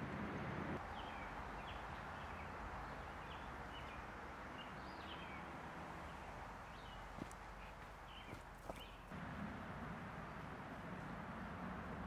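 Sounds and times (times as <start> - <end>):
small birds chirping: 0.8 - 9.2.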